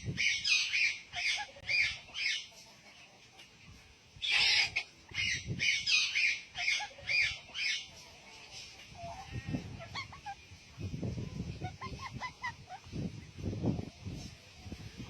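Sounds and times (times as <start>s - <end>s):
bird harsh raspy calls: 4.2s - 7.9s, 9.0s - 10.5s.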